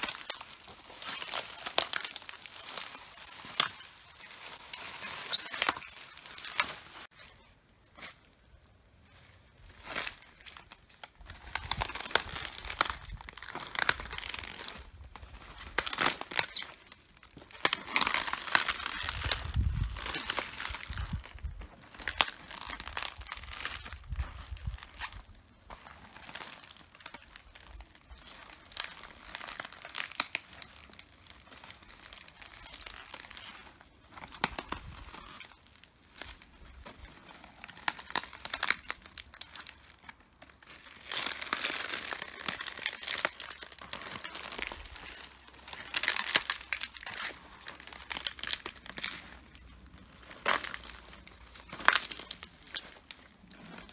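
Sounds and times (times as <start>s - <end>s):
cabbage leaves crunching underfoot: 0.0s - 53.9s.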